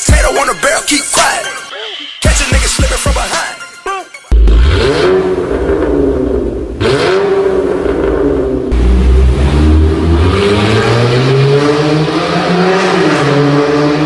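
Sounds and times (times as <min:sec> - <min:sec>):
car engine revving: 0:04.3 - 0:14.0.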